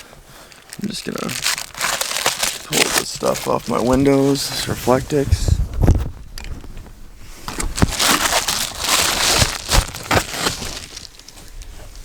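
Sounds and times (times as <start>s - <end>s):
foil insulation crinkling: 0.0s - 5.0s, 7.4s - 11.8s.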